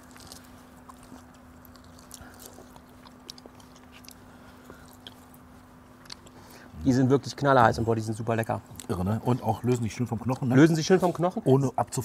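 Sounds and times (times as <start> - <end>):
eating smacks and clicks: 0.0 - 6.4
people chewing: 0.0 - 6.9, 8.4 - 11.2.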